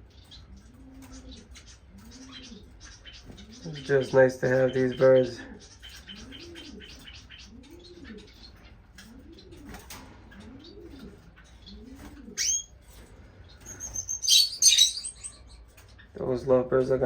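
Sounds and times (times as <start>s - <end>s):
high finch chirps: 0.0s - 16.9s
shrill bird chattering: 1.2s - 8.6s, 10.4s - 12.8s, 13.6s - 16.2s.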